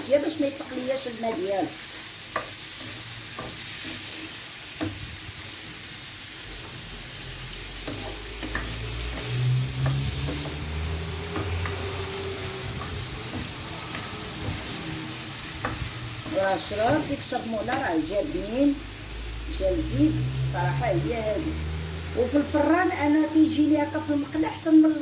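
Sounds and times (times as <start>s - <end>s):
shrimp sizzling in oil: 0.0s - 25.0s
low hum: 6.4s - 16.8s, 17.6s - 23.3s.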